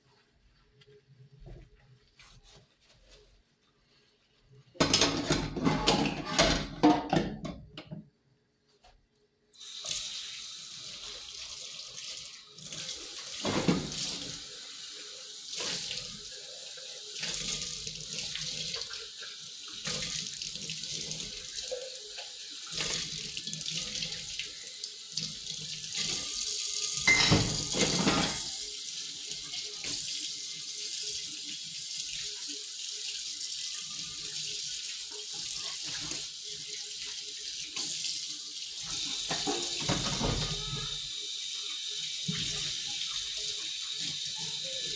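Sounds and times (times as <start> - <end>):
tap running into sink: 38.9 - 41.0
knocks and clatters in basin: 39.2 - 41.0.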